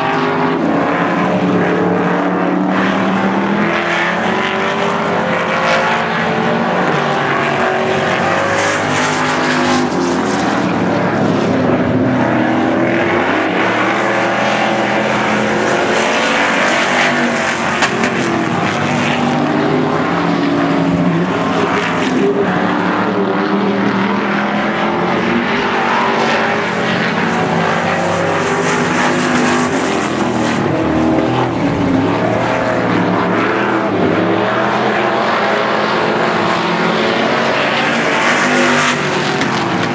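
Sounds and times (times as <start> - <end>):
race car engines: 0.0 - 39.9.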